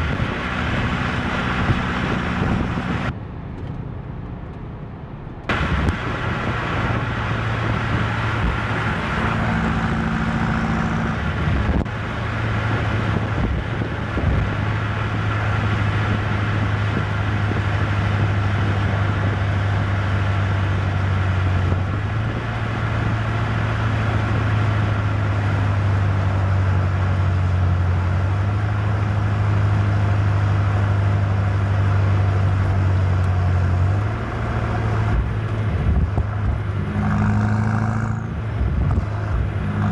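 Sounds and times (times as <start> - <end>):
car engine cruising: 0.0 - 39.9
tyre and road noise: 0.0 - 39.9.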